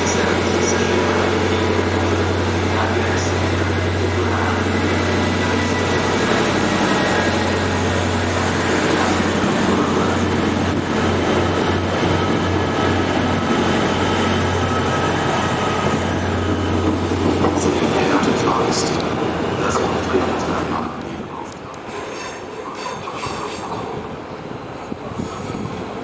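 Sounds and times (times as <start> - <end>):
train low hum: 0.0 - 26.0.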